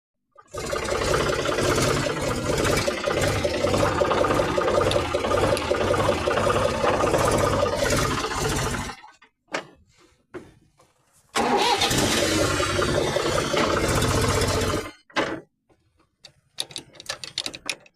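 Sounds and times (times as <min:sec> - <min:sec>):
tractor engine chugging: 0:00.5 - 0:09.0, 0:11.4 - 0:14.9.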